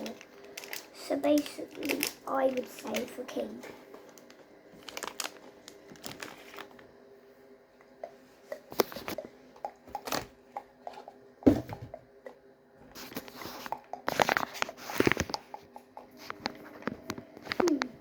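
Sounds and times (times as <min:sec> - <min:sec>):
crinkling and rustling of materials: 0:00.0 - 0:07.0, 0:08.0 - 0:12.0, 0:12.8 - 0:18.0.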